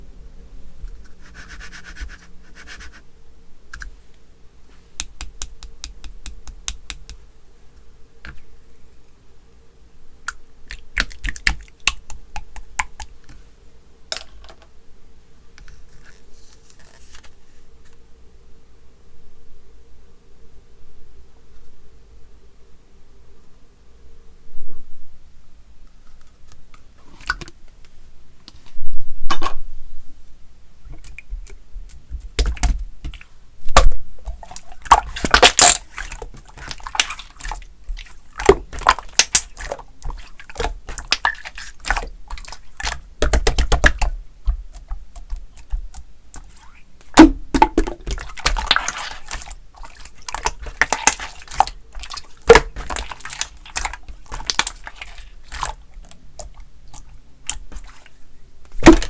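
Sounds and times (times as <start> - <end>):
slime squelching: 10.3 - 13.4, 31.0 - 59.0.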